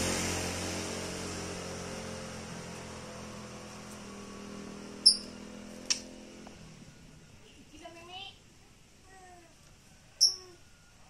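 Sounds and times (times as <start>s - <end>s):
short high chirp: 5.0s - 5.4s.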